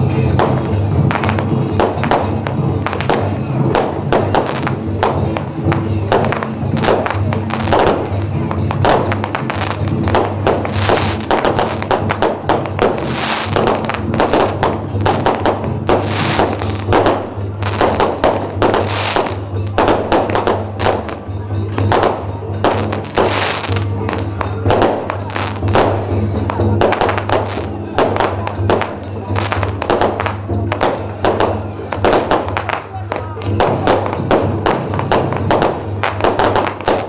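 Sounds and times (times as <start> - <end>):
firecrackers crackling: 0.0 - 37.0
processional music: 0.0 - 37.0.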